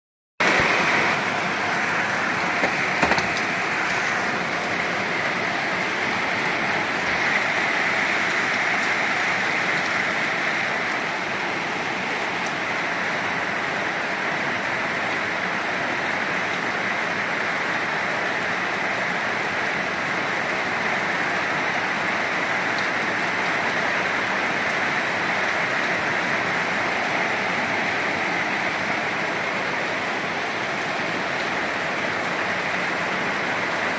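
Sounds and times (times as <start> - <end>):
steady rain falling: 0.4 - 33.9.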